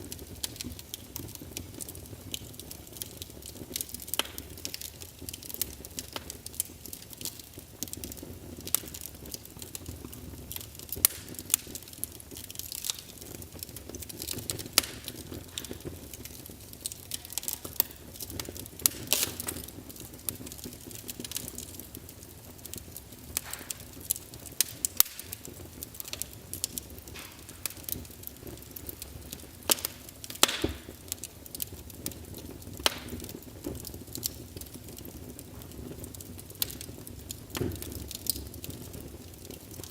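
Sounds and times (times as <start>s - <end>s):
fire pops and snaps: 0.0s - 39.9s
low steady hiss: 0.0s - 39.9s
wood fire crackling: 0.0s - 39.9s.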